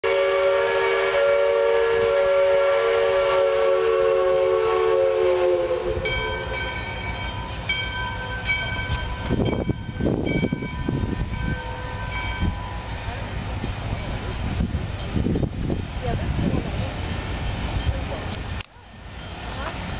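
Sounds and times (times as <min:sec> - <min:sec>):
locomotive chime whistle: 0:00.0 - 0:15.4
train rumbling: 0:00.0 - 0:19.9.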